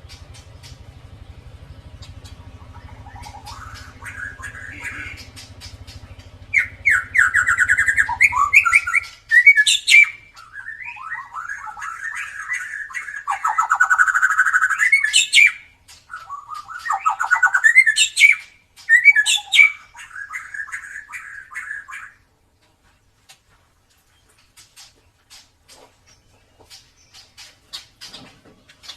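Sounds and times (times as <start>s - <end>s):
low hum: 0.0s - 10.8s
bird singing trills and whistles: 0.0s - 22.2s.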